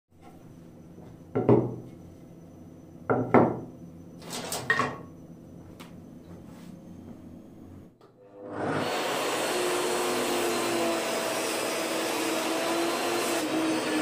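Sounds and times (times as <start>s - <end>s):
wooden boards knocking on workbench: 1.3s - 1.9s, 3.1s - 3.6s.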